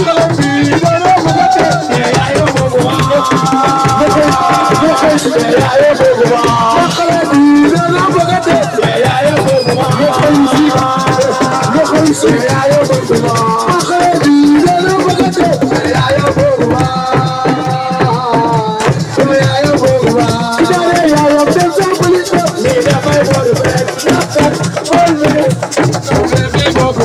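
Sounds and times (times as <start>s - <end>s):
fast percussion: 0.0s - 27.0s
person singing: 0.0s - 27.0s.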